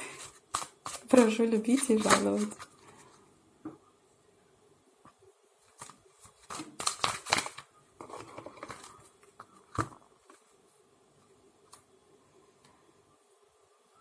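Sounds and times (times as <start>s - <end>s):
cards rustling: 0.0s - 3.0s, 5.6s - 10.5s
cards snapping and flicking: 0.5s - 1.0s, 5.8s - 7.6s.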